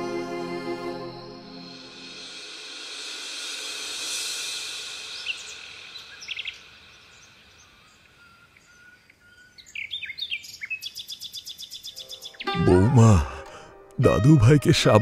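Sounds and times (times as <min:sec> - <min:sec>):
rapid high bird trill: 0:05.0 - 0:12.6
birds chirping: 0:05.1 - 0:13.8.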